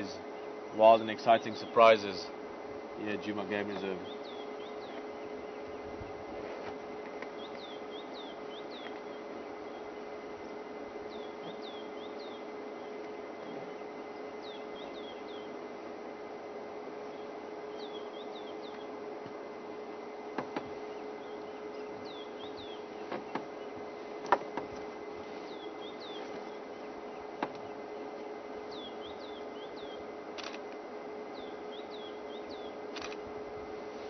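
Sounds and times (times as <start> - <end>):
bird chirping: 3.2 - 6.0, 7.3 - 10.1, 11.0 - 15.6, 17.0 - 19.0, 20.8 - 23.8, 25.4 - 30.5, 31.3 - 33.1
sharp clicks: 30.4 - 30.8, 32.9 - 33.2.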